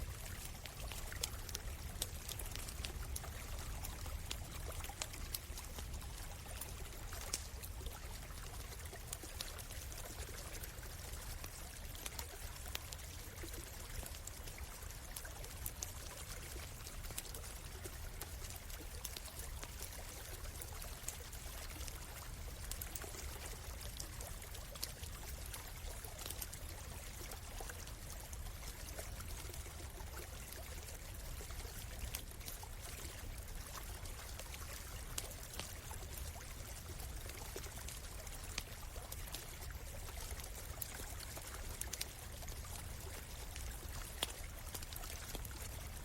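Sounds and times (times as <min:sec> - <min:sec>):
campfire crackling: 0:00.0 - 0:46.0
stream flowing: 0:00.0 - 0:46.0.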